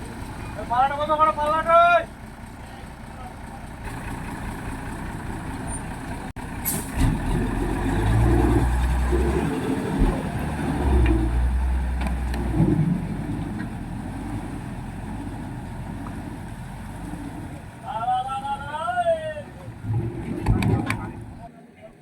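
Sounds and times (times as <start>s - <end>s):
truck engine rumbling: 0.0s - 22.0s.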